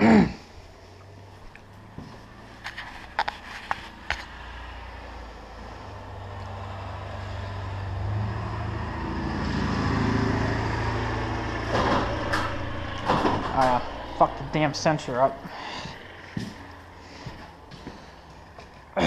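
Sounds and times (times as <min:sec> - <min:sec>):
garage door opener motor humming: 0:09.5 - 0:14.6.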